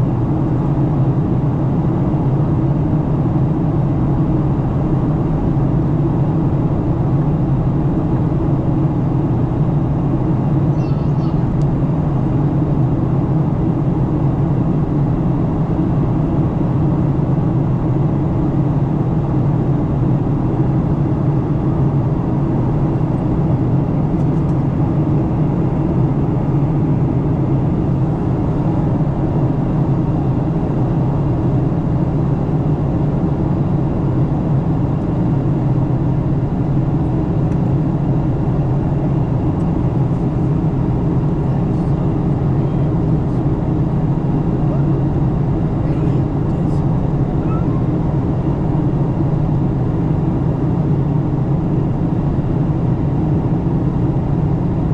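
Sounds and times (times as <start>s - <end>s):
airplane cabin drone: 0.0s - 54.9s.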